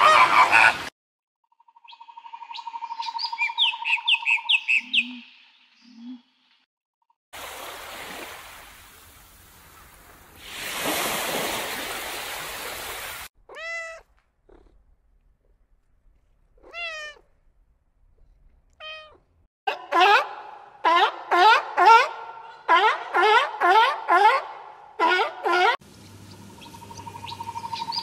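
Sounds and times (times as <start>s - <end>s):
cat meowing: 13.5s - 14.7s, 16.6s - 17.3s, 18.7s - 19.2s.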